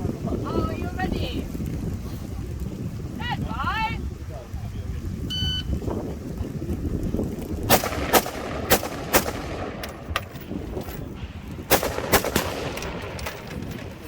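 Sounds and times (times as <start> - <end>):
rifle shots: 7.7 - 10.2, 11.7 - 14.0.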